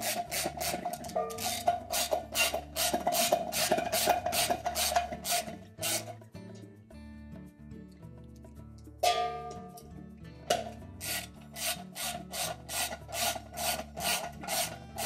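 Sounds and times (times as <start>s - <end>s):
socket ratchet rasping: 0.0s - 6.3s, 11.0s - 15.0s
soft background music: 0.0s - 15.0s.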